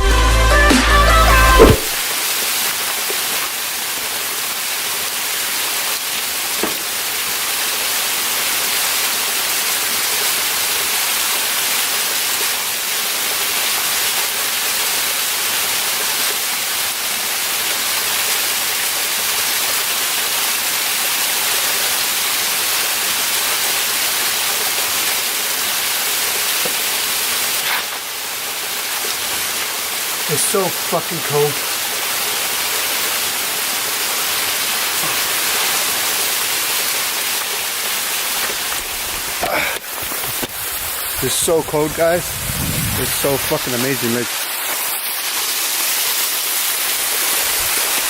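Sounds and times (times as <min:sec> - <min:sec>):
electronic music: 0:00.0 - 0:02.0
waterfall rushing: 0:00.0 - 0:19.3, 0:19.9 - 0:48.0.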